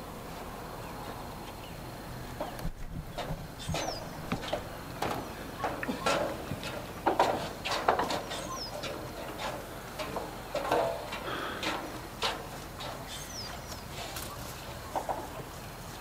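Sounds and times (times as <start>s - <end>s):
birds chirping and calling: 2.4s - 9.5s, 11.3s - 16.0s.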